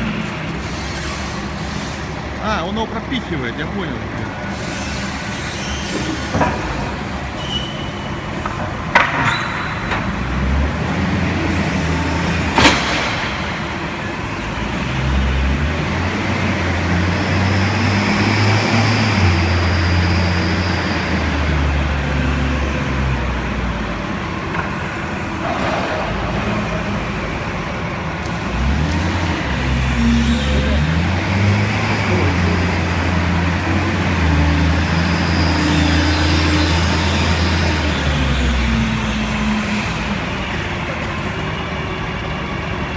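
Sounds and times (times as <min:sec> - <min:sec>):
forklift engine running: 0:09.6 - 0:42.9.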